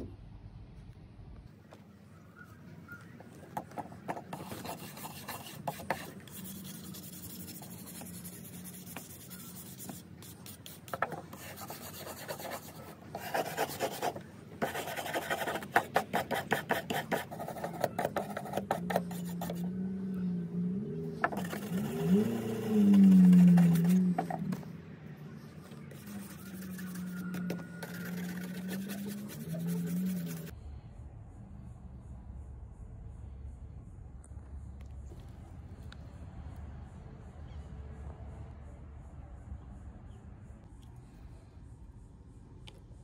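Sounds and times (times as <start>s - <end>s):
filing on steel: 4.1s - 19.6s, 21.3s - 24.4s, 25.7s - 30.5s.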